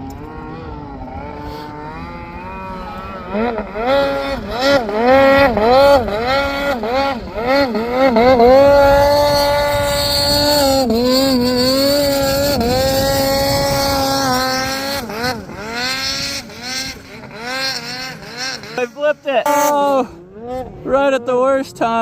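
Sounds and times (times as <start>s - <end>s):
snowmobile engine revving: 0.0s - 22.0s.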